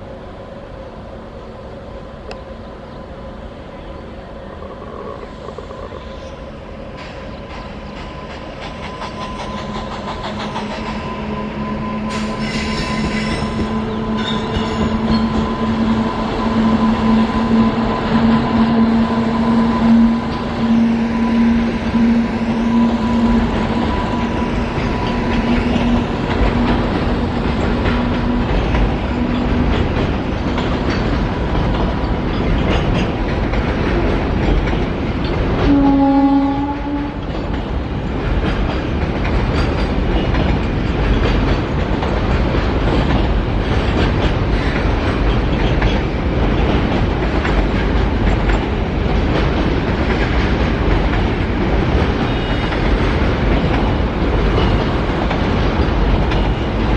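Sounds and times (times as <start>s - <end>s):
train wheels clattering: 6.8s - 56.9s
short train horn blast: 11.1s - 24.2s, 35.6s - 37.2s
steady horn-like tone: 11.1s - 24.6s.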